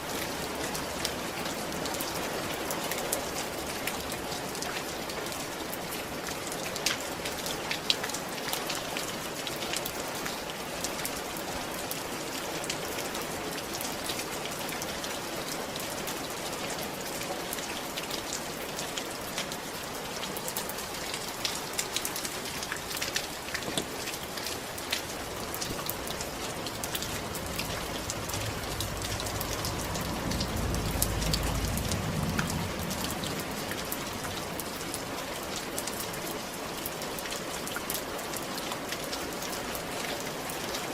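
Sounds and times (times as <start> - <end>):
rain on a roof: 0.0 - 40.9
low rumble: 25.9 - 34.9.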